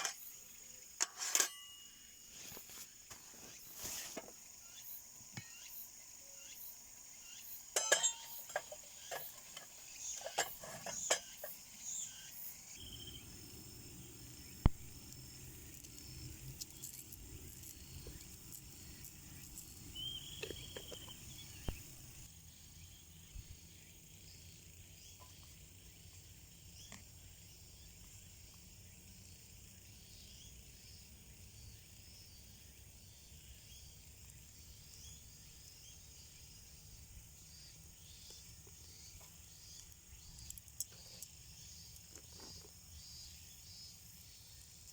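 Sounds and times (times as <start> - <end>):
crickets and insects chirping: 0.0 - 44.9
small clinks and knocks: 7.8 - 11.6.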